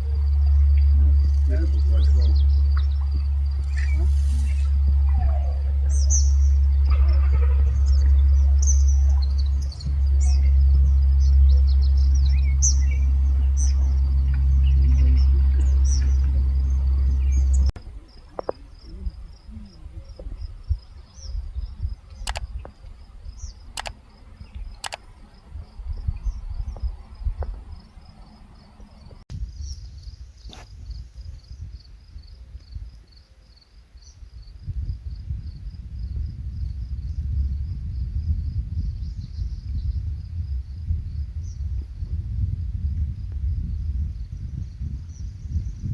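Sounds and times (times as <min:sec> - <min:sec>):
loud low rumble: 0:00.0 - 0:29.6, 0:34.7 - 0:45.9
birds chirping: 0:00.0 - 0:30.6
crickets trilling: 0:00.0 - 0:45.9
sharp clicks: 0:22.1 - 0:22.9, 0:23.7 - 0:25.1.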